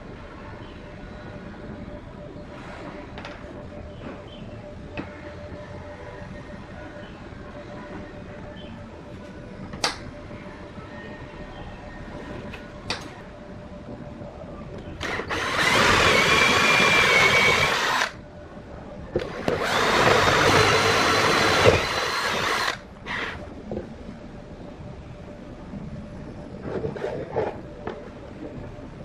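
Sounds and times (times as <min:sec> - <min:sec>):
power tool motor whine: 0:15.0 - 0:18.1, 0:19.4 - 0:23.4.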